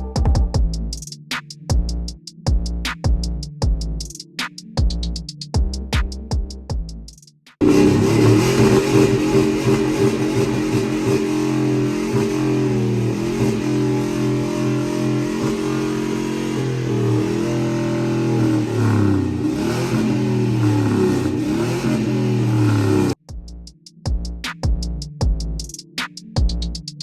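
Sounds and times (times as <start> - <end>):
truck engine revving: 7.6 - 23.2.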